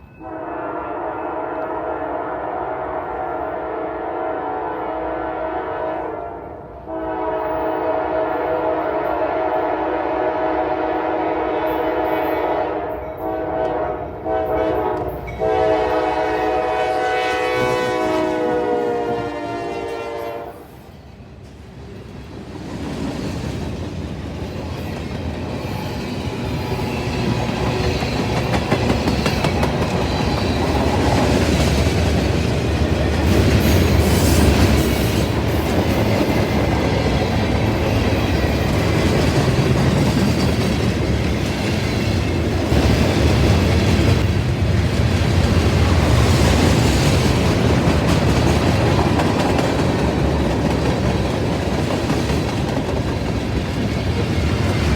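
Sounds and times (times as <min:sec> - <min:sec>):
freight train wheels clacking: 0:21.2 - 0:54.9.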